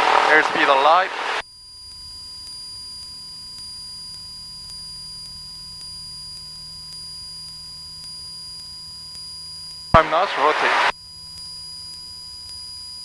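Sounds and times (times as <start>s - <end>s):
faint clicks: 0.0s - 1.4s, 10.0s - 10.9s
electronic whine and hum: 10.0s - 10.9s.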